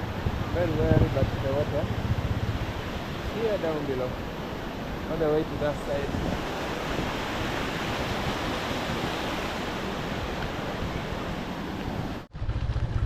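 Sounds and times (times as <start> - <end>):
stream water rushing: 0.0 - 12.3.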